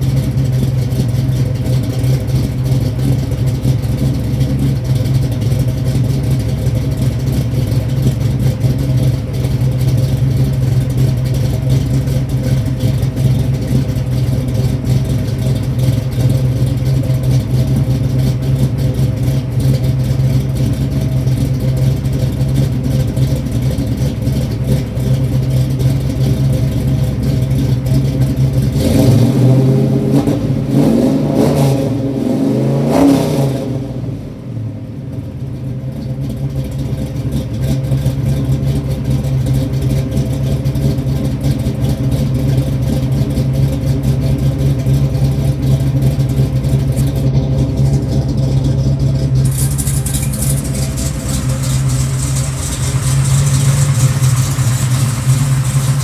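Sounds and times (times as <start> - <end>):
engine idling and revving: 0.0 - 56.0.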